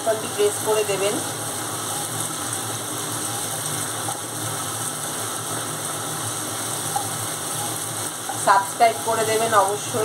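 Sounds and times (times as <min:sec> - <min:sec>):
spice paste sizzling in oil: 0:00.0 - 0:10.0.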